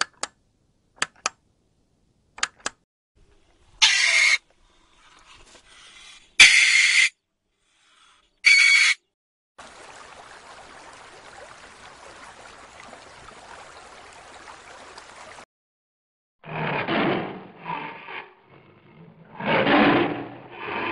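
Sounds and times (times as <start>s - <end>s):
meerkat calls: 3.8s - 4.4s.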